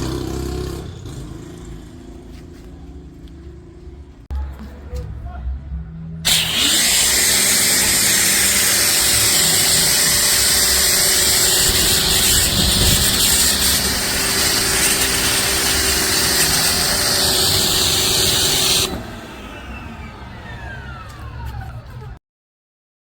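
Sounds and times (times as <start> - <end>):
pressure washer water jet hissing: 6.3 - 19.3
pressure washer motor humming: 6.3 - 21.8.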